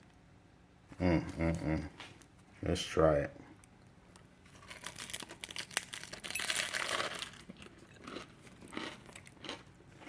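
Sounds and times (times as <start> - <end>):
biting into crunchy muffin: 4.5 - 10.0
chewing: 6.9 - 10.0.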